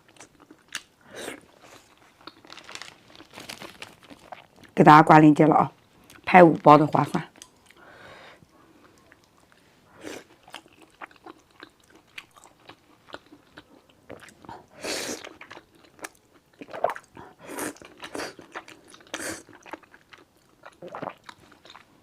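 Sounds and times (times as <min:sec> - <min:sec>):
chewing noodles: 0:00.0 - 0:04.8, 0:08.8 - 0:21.9.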